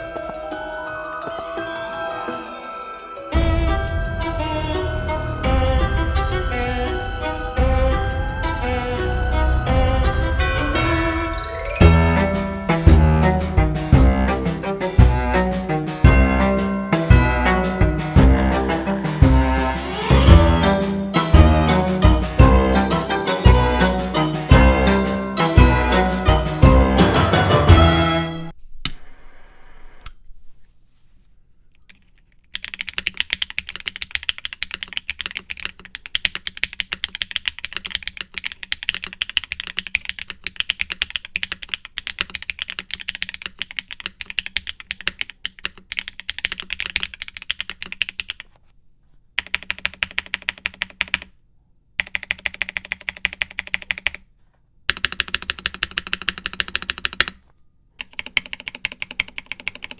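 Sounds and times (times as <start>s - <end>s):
fast typing on mechanical keyboard: 32.5s - 48.5s, 49.4s - 51.3s, 52.0s - 54.3s, 54.9s - 57.4s, 58.0s - 59.9s.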